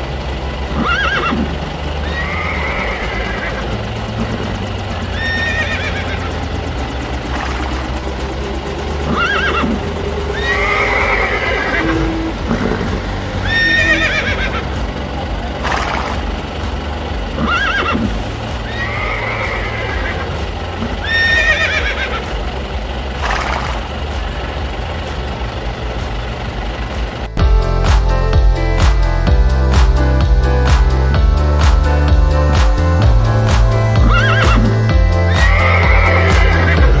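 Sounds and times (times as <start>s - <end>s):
steady low hum: 0.0s - 37.0s
horse neighing: 0.8s - 3.8s, 5.1s - 6.3s, 9.1s - 14.6s, 17.4s - 20.3s, 21.0s - 22.3s, 35.3s - 37.0s.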